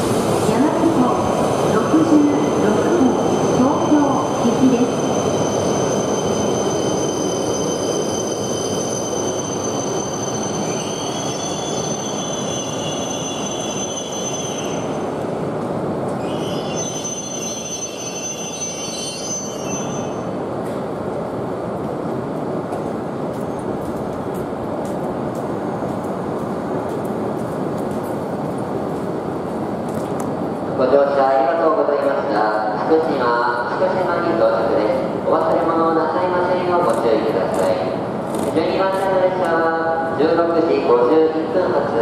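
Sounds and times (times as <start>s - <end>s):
train rolling rumble: 0.0s - 42.0s
high-pitched brake squeal: 4.4s - 15.0s, 16.2s - 20.3s.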